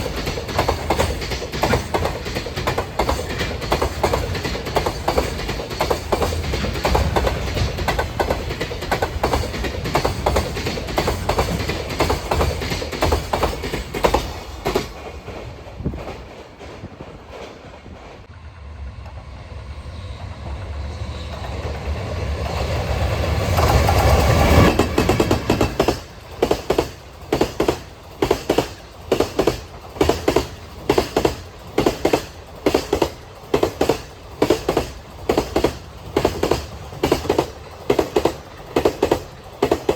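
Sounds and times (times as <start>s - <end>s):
wagon wheels clacking over rail joints: 0.0s - 18.2s
freight train passing: 0.0s - 39.9s.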